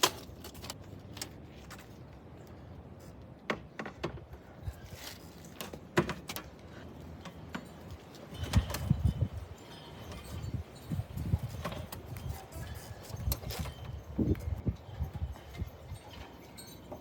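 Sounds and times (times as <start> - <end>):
metal brackets and tools clinking: 7.2 - 17.0.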